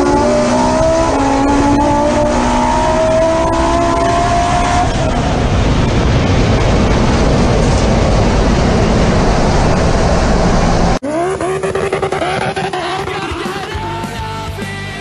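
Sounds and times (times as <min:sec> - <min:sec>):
car engine revving: 0:00.0 - 0:14.8
race car engine at full throttle: 0:00.0 - 0:15.0.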